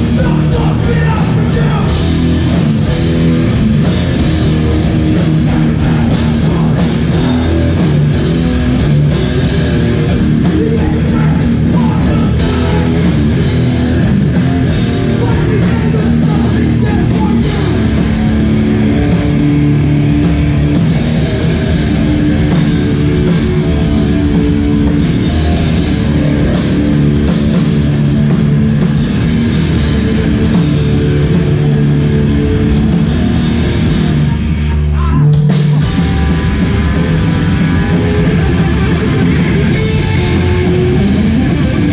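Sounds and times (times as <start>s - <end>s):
shouted vocals: 0.0s - 2.0s
bass: 0.0s - 41.9s
distorted guitars: 0.0s - 41.9s
drum kit: 0.0s - 41.9s.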